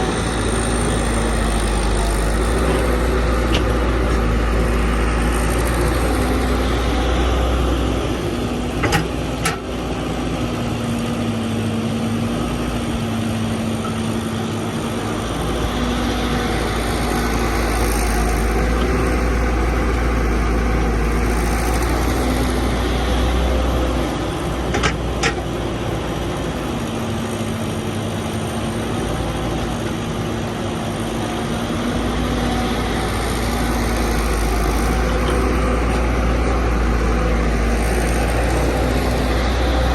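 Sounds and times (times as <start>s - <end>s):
excavator diesel engine rumbling: 0.0s - 39.9s.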